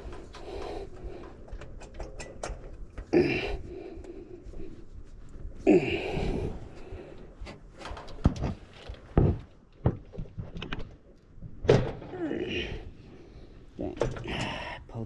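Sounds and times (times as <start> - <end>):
metal tools knocking and clicking: 1.2 - 2.8.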